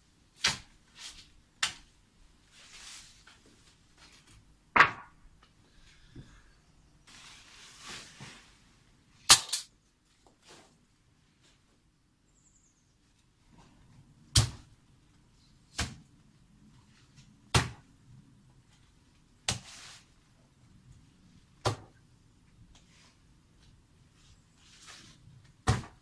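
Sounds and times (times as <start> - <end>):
hand tool striking heavily: 9.3 - 9.7.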